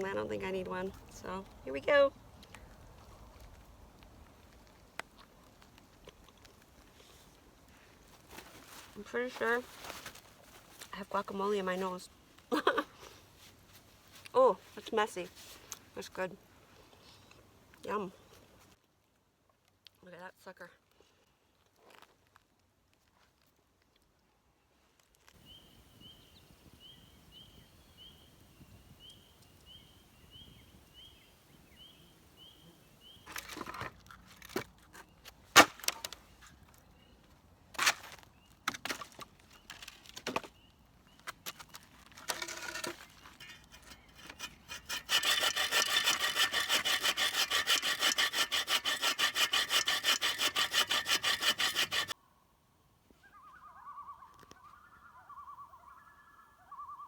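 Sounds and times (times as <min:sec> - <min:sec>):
saw cutting wood: 0:43.6 - 0:52.2.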